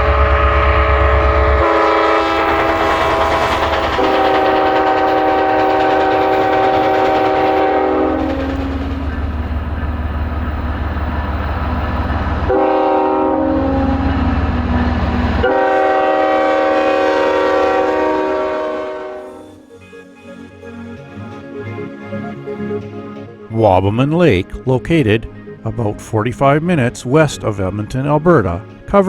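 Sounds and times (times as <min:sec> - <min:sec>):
locomotive air horn blasts: 0:00.0 - 0:08.8, 0:12.5 - 0:14.0, 0:15.4 - 0:19.7
passing train rumble: 0:00.0 - 0:29.0.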